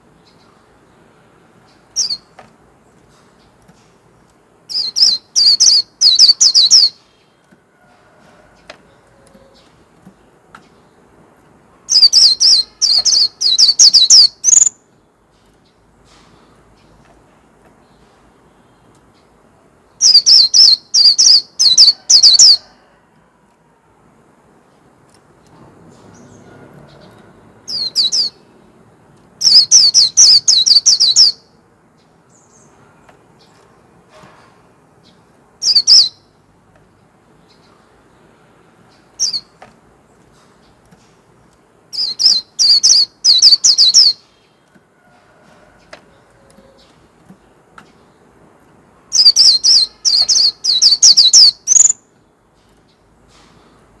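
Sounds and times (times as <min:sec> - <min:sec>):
bird chirping: 0:01.6 - 0:03.9, 0:04.7 - 0:07.4, 0:11.9 - 0:17.1, 0:17.8 - 0:22.6, 0:25.9 - 0:28.7, 0:29.4 - 0:33.7, 0:35.0 - 0:36.4, 0:37.4 - 0:41.2, 0:41.9 - 0:44.7, 0:49.1 - 0:53.5.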